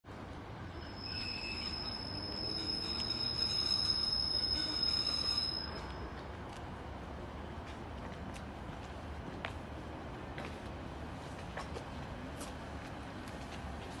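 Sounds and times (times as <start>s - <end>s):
train low rumble: 0.1s - 14.0s
train wheels squealing: 0.6s - 6.2s.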